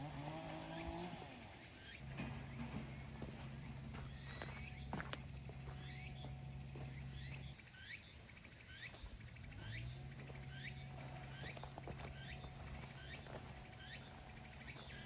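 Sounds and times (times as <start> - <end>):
low steady hum: 0.0 - 15.0
small animal chirping: 7.0 - 15.0.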